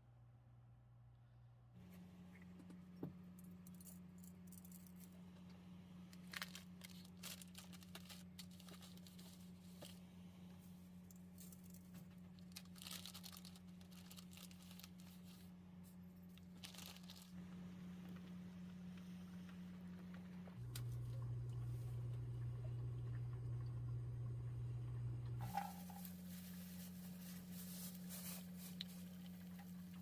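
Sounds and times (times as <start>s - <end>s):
steady low hum: 13.4s - 30.0s
light clicks and crinkling: 25.3s - 30.0s.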